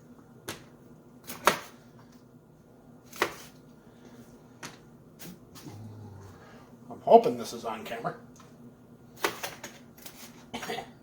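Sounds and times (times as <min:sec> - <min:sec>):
knife chopping on cutting board: 0:01.2 - 0:01.8, 0:03.1 - 0:03.5.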